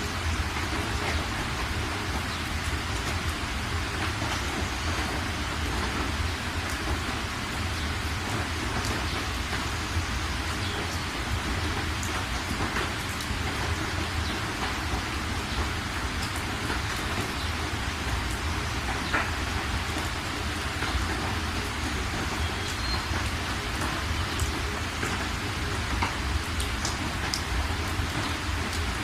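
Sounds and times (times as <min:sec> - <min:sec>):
raindrops ticking: 0:00.0 - 0:29.0
steady rain: 0:00.0 - 0:29.0.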